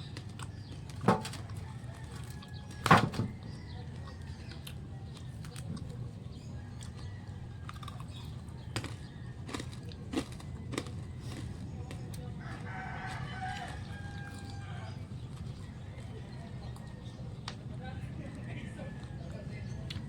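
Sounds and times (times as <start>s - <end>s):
rooster crowing: 1.4s - 4.4s, 12.4s - 15.2s.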